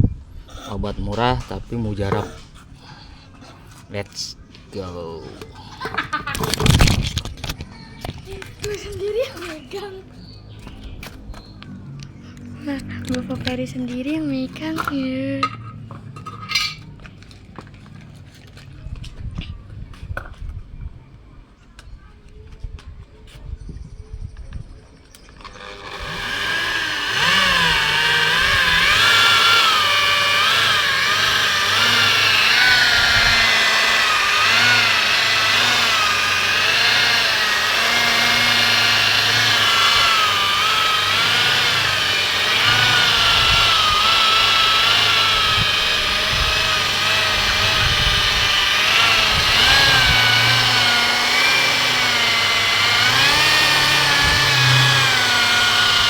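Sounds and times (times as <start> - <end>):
electric polisher motor whine: 25.4 - 56.0.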